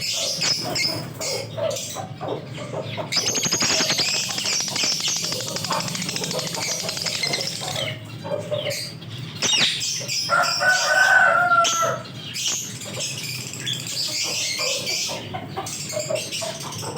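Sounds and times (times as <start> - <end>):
lovebirds chirping: 0.0 - 16.9
rooster crowing: 10.3 - 12.2.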